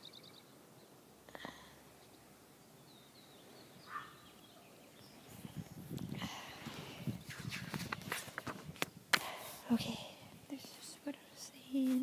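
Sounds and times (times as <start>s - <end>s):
faint birds calling: 0.0s - 8.0s
book pages turning: 7.3s - 9.3s.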